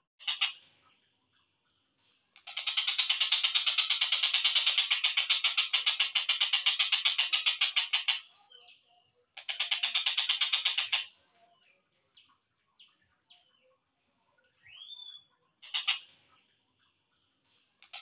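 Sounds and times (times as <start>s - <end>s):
faint bird chirps: 7.2s - 18.0s
kingfisher rapid rattle call: 15.6s - 16.1s.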